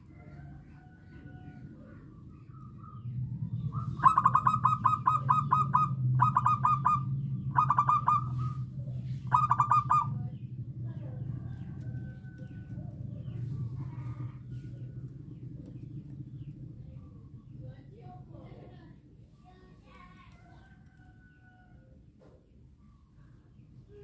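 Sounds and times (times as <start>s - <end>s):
dove cooing: 0.0s - 10.4s
steady low hum: 0.0s - 20.4s.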